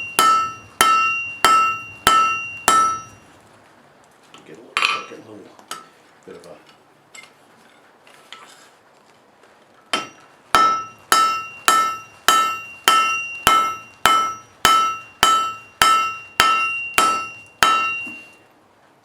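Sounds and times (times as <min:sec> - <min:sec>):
hammer striking steel on anvil: 0:00.0 - 0:03.2, 0:09.9 - 0:18.4.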